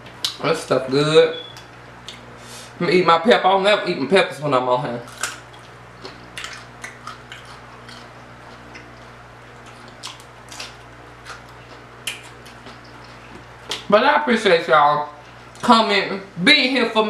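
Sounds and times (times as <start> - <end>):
person chewing: 1.4 - 2.3, 5.1 - 13.9
mouth clicks and smacks: 9.7 - 13.9.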